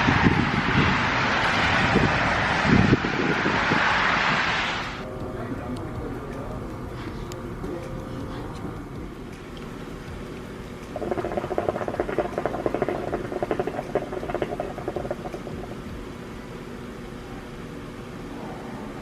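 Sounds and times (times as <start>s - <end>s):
steady background hum: 0.0s - 19.0s
hookah water bubbling: 9.2s - 16.3s.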